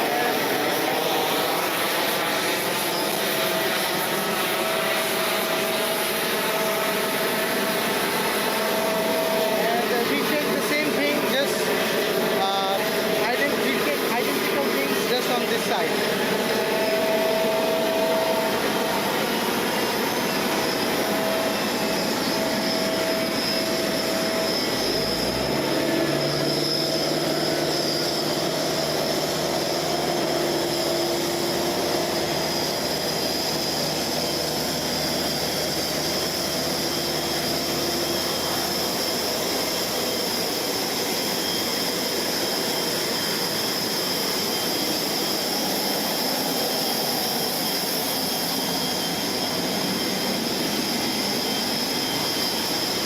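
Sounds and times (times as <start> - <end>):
jet engine whine: 0.0 - 53.0.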